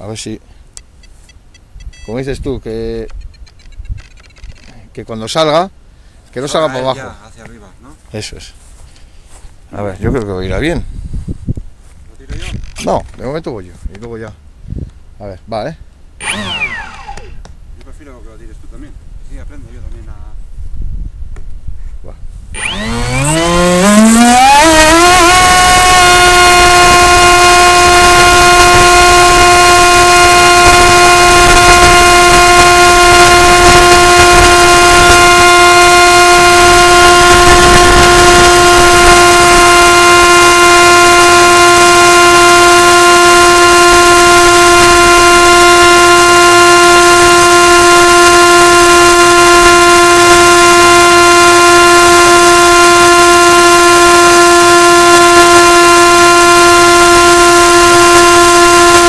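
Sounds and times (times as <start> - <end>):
model plane motor whine: 16.2 - 17.4, 22.6 - 59.0.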